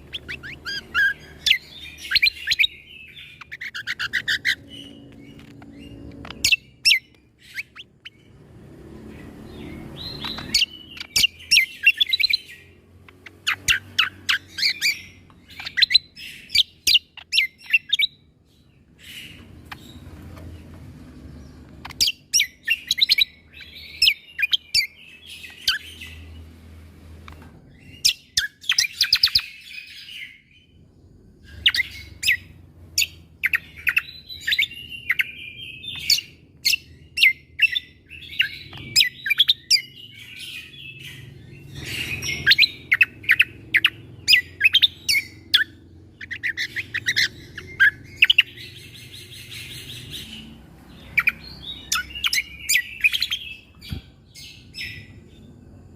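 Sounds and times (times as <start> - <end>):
songbird singing sharp trills: 31.4 - 55.8.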